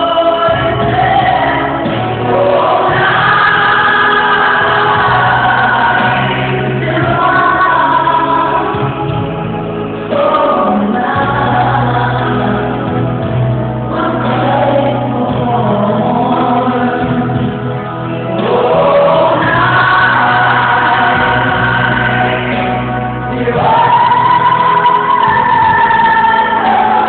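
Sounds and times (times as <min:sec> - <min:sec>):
choir singing gospel music: 0:00.0 - 0:27.0.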